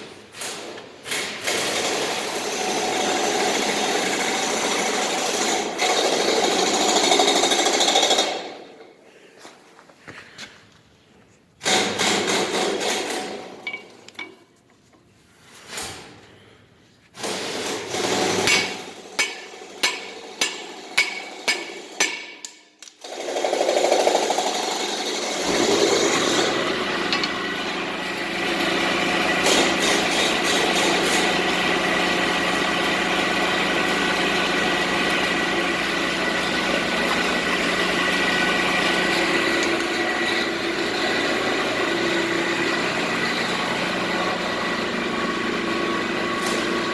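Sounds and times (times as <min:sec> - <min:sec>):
engine running: 0:24.8 - 0:46.9.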